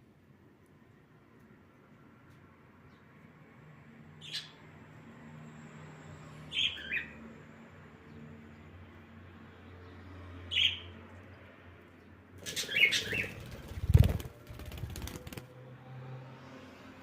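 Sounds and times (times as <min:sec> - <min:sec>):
bird chirp: 0:06.5 - 0:07.2, 0:10.5 - 0:11.0, 0:12.4 - 0:15.2
birds squawking shrilly: 0:12.4 - 0:14.1
wings flapping hard: 0:12.4 - 0:15.5.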